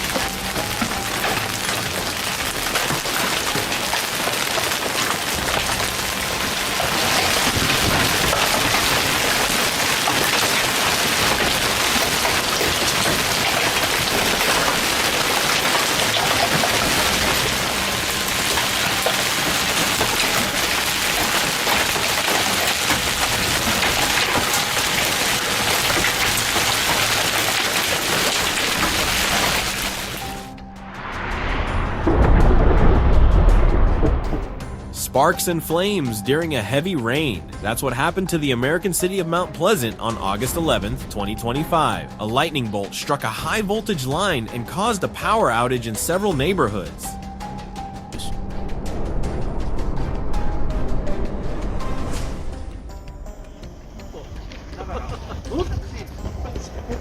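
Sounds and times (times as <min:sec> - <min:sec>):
heavy rain: 0:00.0 - 0:34.7.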